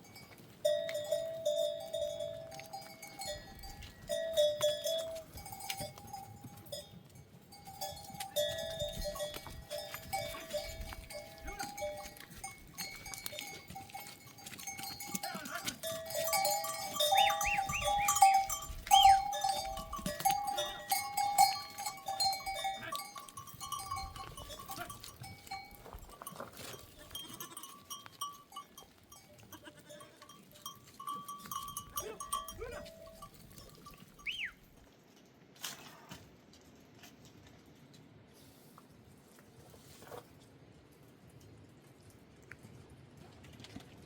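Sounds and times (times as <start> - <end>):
goat bells clinking: 0.0 - 34.8
goats bleating: 26.9 - 27.7, 29.4 - 30.3.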